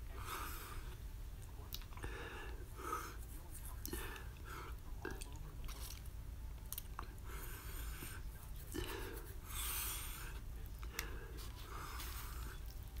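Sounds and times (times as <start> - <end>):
breathy hiss: 7.2 - 12.7.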